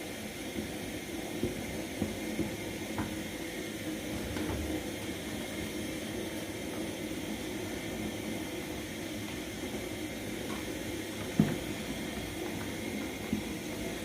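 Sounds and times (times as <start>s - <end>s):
gas burner hissing: 0.0s - 14.0s.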